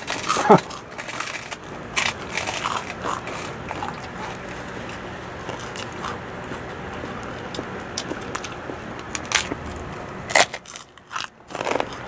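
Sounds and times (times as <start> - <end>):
crunching pork rinds: 0.0 - 12.0.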